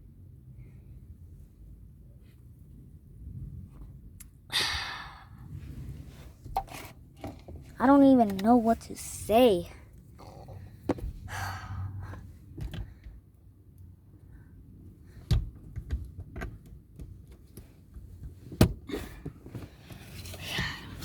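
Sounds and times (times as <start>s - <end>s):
knocks and clicks in car cabin: 15.2s - 19.6s.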